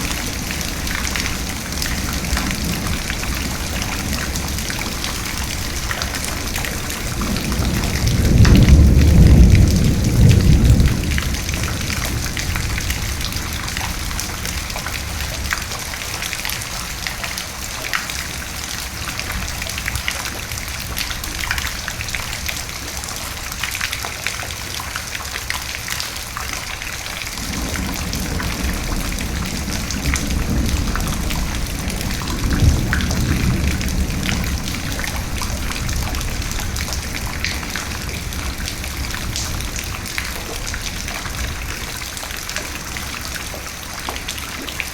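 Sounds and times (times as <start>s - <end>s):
thunder rumbling: 0.0s - 15.5s, 27.4s - 44.9s
steady rain falling: 0.0s - 44.9s.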